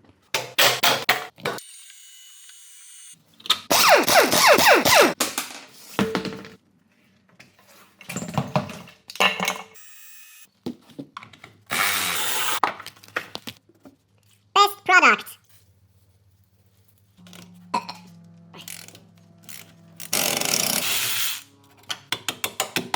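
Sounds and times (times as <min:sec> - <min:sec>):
power tool whirring: 0:01.6 - 0:05.2, 0:11.7 - 0:12.6, 0:18.1 - 0:21.5.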